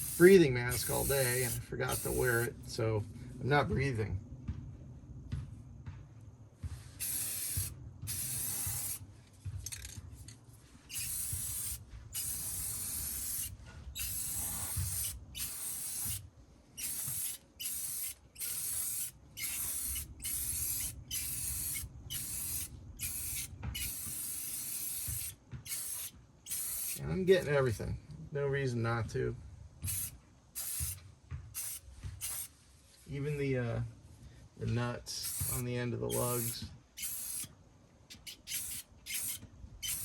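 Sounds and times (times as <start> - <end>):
spray paint can spraying: 0.0 - 2.5, 6.9 - 9.0, 10.8 - 16.2, 16.8 - 27.0, 29.8 - 32.5, 35.2 - 37.5, 38.1 - 40.0.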